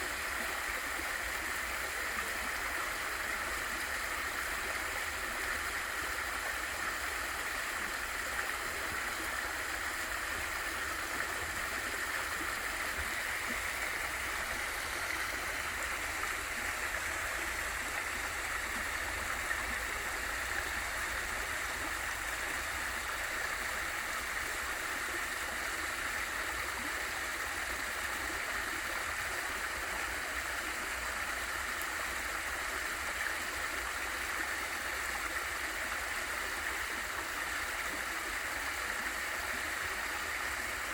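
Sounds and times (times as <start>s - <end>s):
small waterfall rushing: 0.0s - 40.9s.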